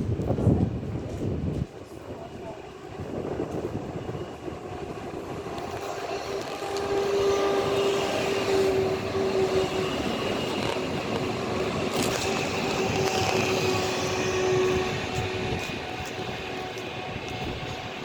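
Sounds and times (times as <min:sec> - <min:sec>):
train running past: 0:00.0 - 0:18.0
steady whine: 0:01.8 - 0:18.0.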